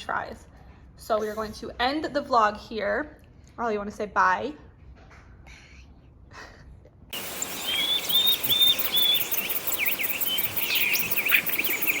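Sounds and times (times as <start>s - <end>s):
birds singing: 7.2s - 12.0s
insects trilling: 7.2s - 12.0s.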